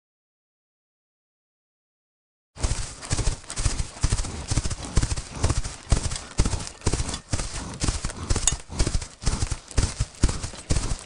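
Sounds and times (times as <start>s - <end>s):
hooves of running herd: 2.6s - 11.0s.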